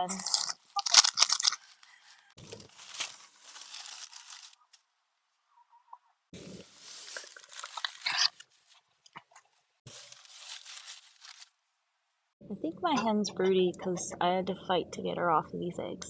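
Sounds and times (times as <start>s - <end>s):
pads rustling and crinkling: 2.4s - 4.7s, 6.4s - 8.8s, 9.9s - 11.6s.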